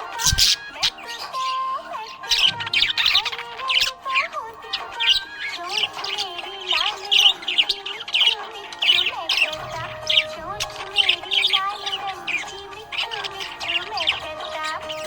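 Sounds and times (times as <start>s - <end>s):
background music: 0.0s - 15.0s
budgerigar chirping: 0.0s - 15.0s.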